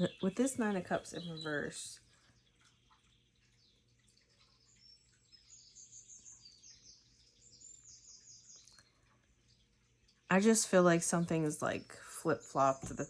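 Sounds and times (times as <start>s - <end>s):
faint bird chirping: 0.0s - 13.0s.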